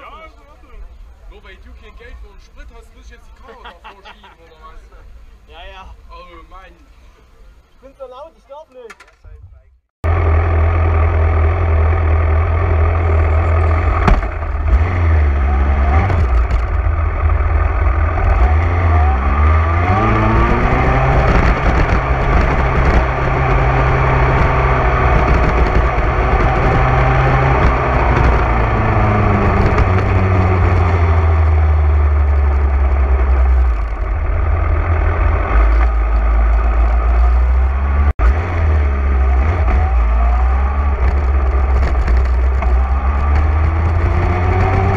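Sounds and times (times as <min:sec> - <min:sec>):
motorcycle engine revving: 0:10.0 - 0:44.9.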